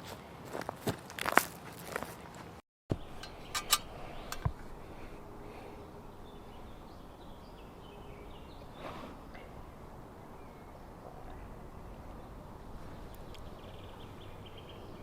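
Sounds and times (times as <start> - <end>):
footsteps crunching on forest floor: 0.0 - 3.0
bird singing high notes: 2.9 - 12.3
twigs cracking and clicking: 13.0 - 13.7.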